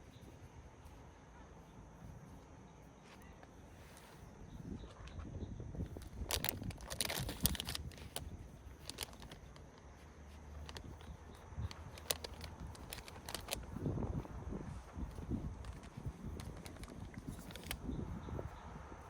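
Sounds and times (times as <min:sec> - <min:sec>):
sharp clicks: 0:05.9 - 0:13.8, 0:15.1 - 0:18.0
rustling: 0:05.9 - 0:19.0.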